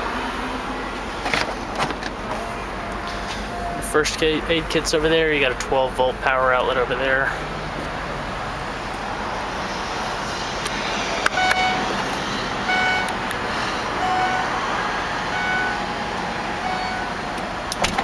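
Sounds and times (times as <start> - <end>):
vehicle and outdoor noise: 0.0 - 18.0
short high beeps: 11.4 - 11.9, 16.6 - 17.1.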